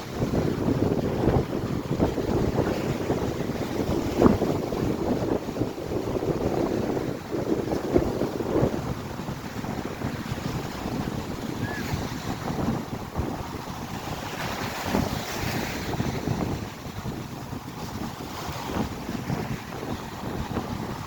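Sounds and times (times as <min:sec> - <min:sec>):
surf washing onto beach: 0:00.0 - 0:21.0
wind buffeting microphone: 0:00.0 - 0:21.0.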